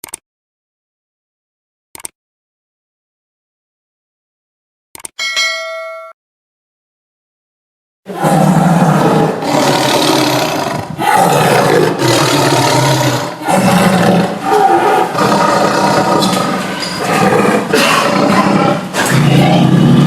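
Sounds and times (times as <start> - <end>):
tiger roaring: 8.1 - 20.0.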